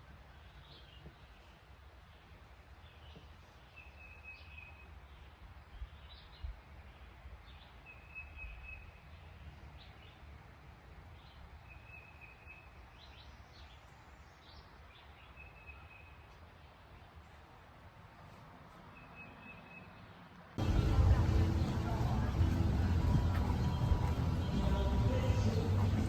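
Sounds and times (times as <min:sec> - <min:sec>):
birds chirping: 0:19.0 - 0:26.0
low steady rumble: 0:20.6 - 0:26.0.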